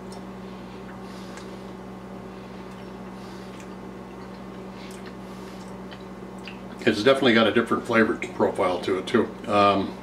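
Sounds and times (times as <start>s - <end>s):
low electrical hum: 0.0s - 10.0s
mouth chewing: 2.6s - 6.8s.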